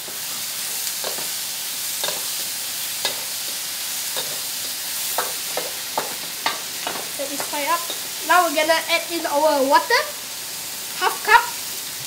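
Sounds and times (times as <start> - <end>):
eggplant sizzling in hot oil: 0.0 - 12.0
spatula scraping a wok: 2.0 - 7.1.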